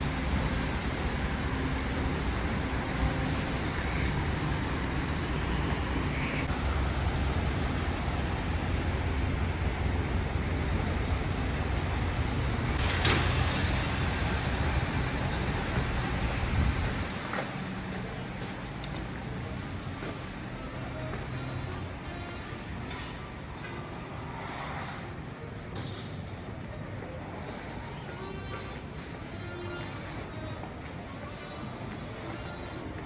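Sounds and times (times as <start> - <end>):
vehicle rumbling from inside: 0.0 - 21.8.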